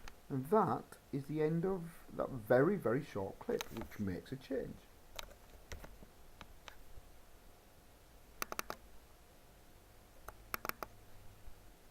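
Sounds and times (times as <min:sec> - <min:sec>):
faint sharp clicks: 0:10.2 - 0:11.0.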